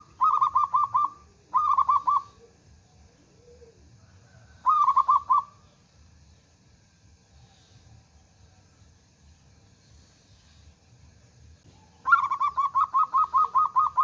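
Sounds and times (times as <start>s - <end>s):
dove cooing: 0.0s - 5.6s, 11.7s - 14.0s.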